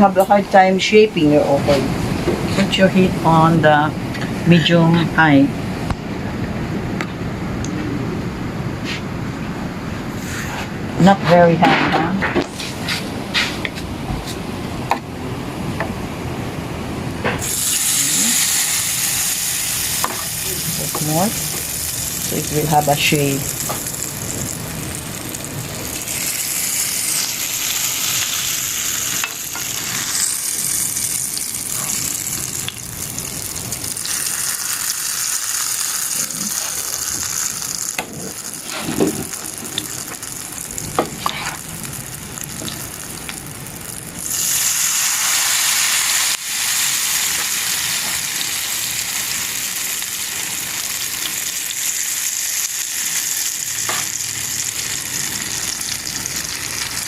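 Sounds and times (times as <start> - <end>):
batter sizzling in hot oil: 17.4 - 57.0.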